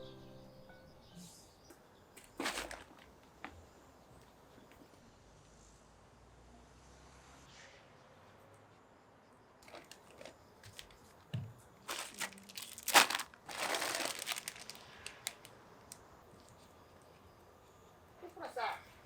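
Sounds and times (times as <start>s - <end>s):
crinkling and rustling: 2.2s - 3.7s, 9.6s - 16.7s.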